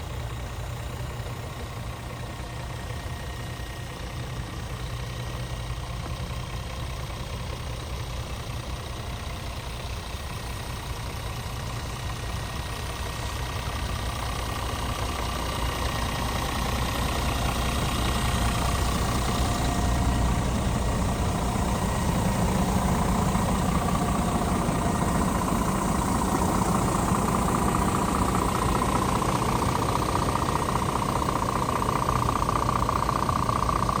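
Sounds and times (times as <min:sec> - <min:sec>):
truck diesel engine running: 0:00.0 - 0:34.0
steady whine: 0:14.4 - 0:34.0.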